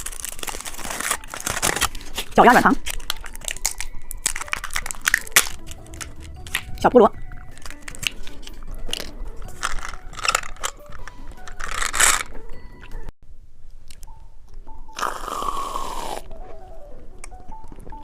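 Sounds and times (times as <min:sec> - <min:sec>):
candy crunching: 0:00.0 - 0:12.4.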